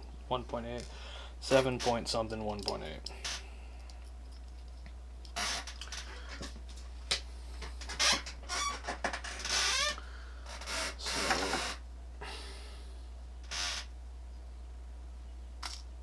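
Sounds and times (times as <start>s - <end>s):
low electrical hum: 0.0s - 16.0s
small hard parts clicking: 2.5s - 6.5s, 15.6s - 15.9s.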